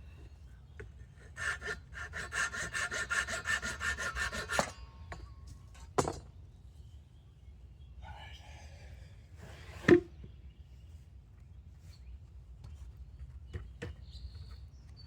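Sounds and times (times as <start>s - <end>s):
hand tool rasping on wood: 1.1s - 4.8s.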